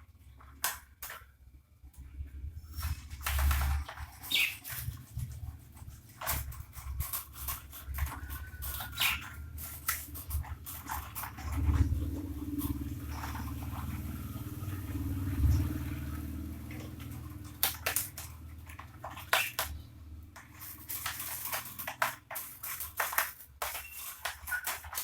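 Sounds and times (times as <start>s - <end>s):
bird cage parts clicking: 16.6s - 25.0s.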